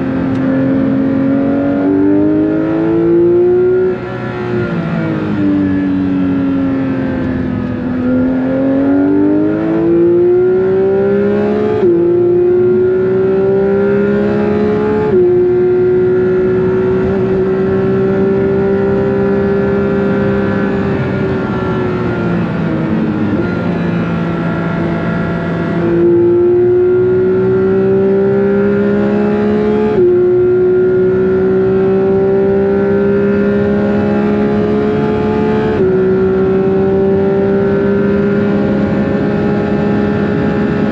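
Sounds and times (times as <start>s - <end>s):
sports car engine revving with gear shifts: 0.0s - 40.9s.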